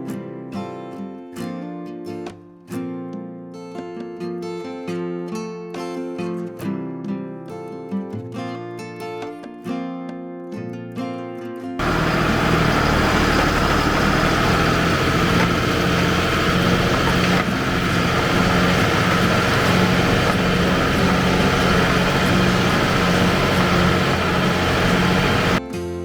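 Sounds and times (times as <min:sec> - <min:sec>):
tractor engine running: 0:11.8 - 0:25.6.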